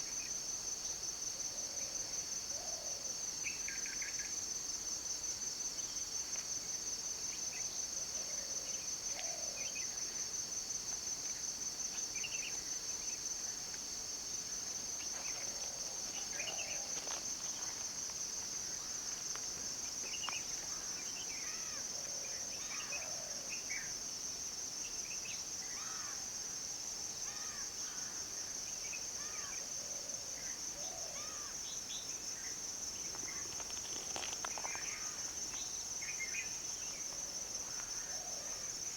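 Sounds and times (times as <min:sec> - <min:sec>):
insects trilling: 0:14.3 - 0:38.9.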